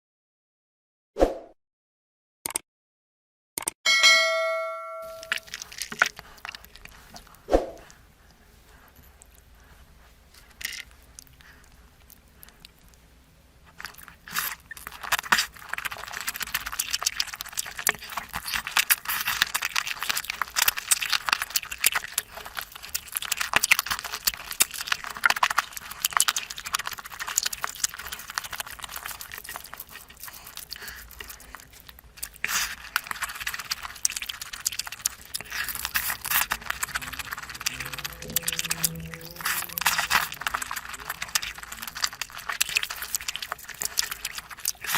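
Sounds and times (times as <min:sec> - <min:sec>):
low hum: 0:03.9 - 0:05.5, 0:36.2 - 0:42.2
wet chewing and smacking: 0:05.0 - 0:44.9.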